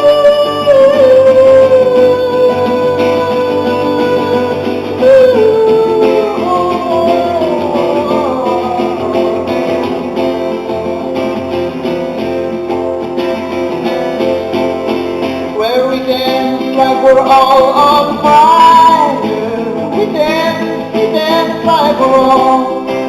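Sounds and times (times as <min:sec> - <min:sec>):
strummed guitar chords: 0:00.0 - 0:23.0
wavering melody line: 0:01.2 - 0:14.9.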